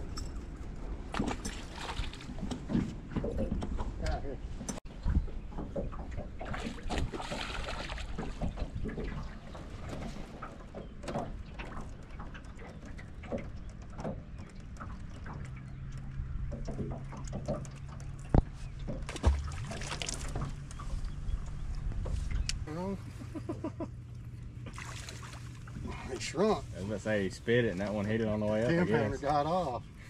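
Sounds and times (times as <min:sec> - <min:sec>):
gear knocks and clicks: 0:09.8 - 0:19.2
low electric hum: 0:10.6 - 0:30.0.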